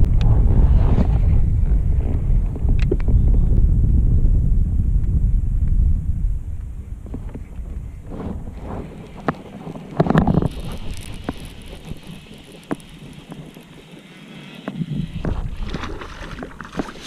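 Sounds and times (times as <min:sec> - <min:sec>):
wind buffeting microphone: 0:00.0 - 0:17.0
knocks and clicks on a kayak: 0:08.8 - 0:11.6.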